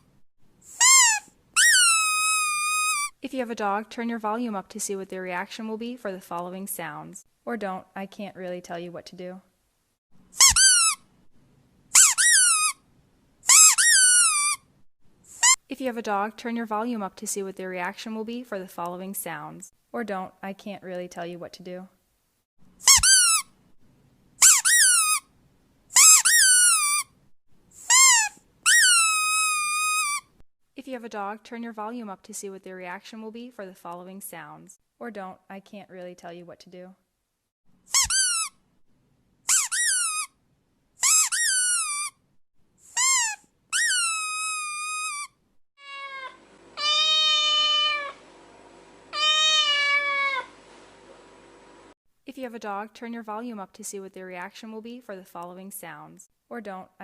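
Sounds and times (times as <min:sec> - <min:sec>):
squeaky rubber dog toy: 0:00.7 - 0:03.2, 0:10.3 - 0:11.1, 0:11.9 - 0:12.8, 0:13.4 - 0:14.7, 0:15.3 - 0:15.6, 0:22.8 - 0:23.6, 0:24.4 - 0:25.3, 0:25.9 - 0:27.2, 0:27.8 - 0:30.4, 0:37.9 - 0:38.6, 0:39.5 - 0:40.4, 0:41.0 - 0:42.2, 0:42.9 - 0:48.2, 0:49.1 - 0:50.5
small animal meow-like cries: 0:44.1 - 0:48.2, 0:49.1 - 0:50.5.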